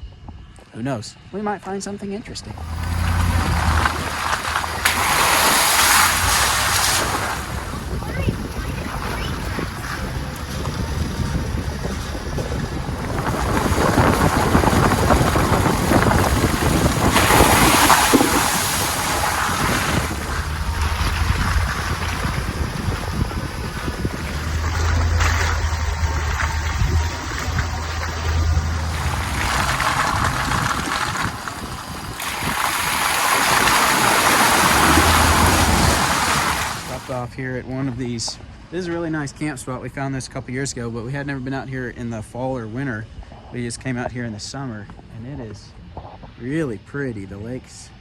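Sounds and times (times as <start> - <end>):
low engine hum: 2.2 - 48.0
tyre noise on wet road: 2.5 - 38.0
tyre hiss on wet road: 2.6 - 7.6.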